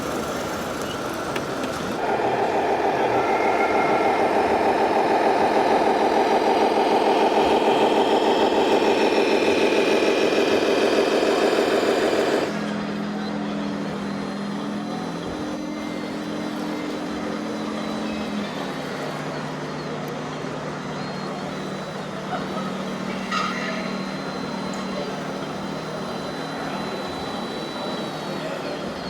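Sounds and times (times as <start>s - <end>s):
crowd chatter: 0.0s - 29.0s
model truck engine hum: 0.0s - 29.0s
thin high tone: 21.1s - 29.0s.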